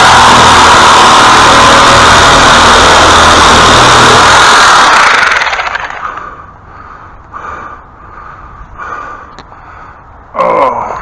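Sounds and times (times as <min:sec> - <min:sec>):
power tool running: 0:00.0 - 0:06.2.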